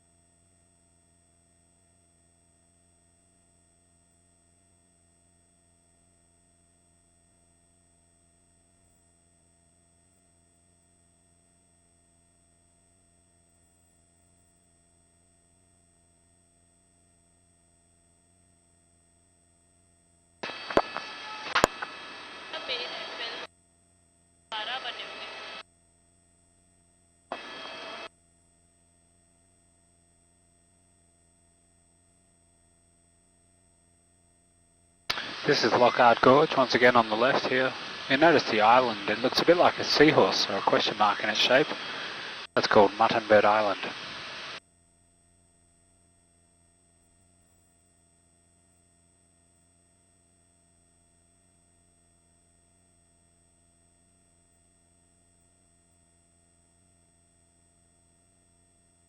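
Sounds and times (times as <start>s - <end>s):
faint intercom hum with tones: 20.4s - 23.5s, 24.5s - 25.6s, 27.3s - 28.1s, 35.1s - 44.6s
microphone burst: 35.1s - 44.6s.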